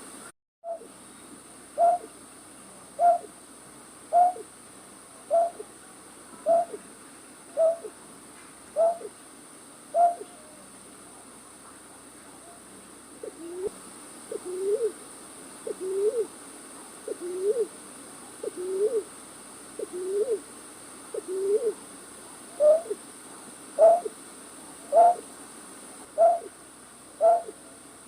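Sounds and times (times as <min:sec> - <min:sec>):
faint steady hiss: 0:00.0 - 0:28.0
night bird hooting calls: 0:00.6 - 0:00.9, 0:01.8 - 0:02.2, 0:03.0 - 0:03.3, 0:04.1 - 0:04.5, 0:05.3 - 0:05.6, 0:06.5 - 0:06.8, 0:07.6 - 0:08.0, 0:08.8 - 0:09.2, 0:09.9 - 0:10.6, 0:14.3 - 0:15.0, 0:15.7 - 0:16.3, 0:17.1 - 0:17.7, 0:18.4 - 0:19.1, 0:19.8 - 0:20.4, 0:21.2 - 0:21.8, 0:22.6 - 0:23.0, 0:23.8 - 0:24.2, 0:24.9 - 0:25.3, 0:26.2 - 0:26.5, 0:27.2 - 0:27.6.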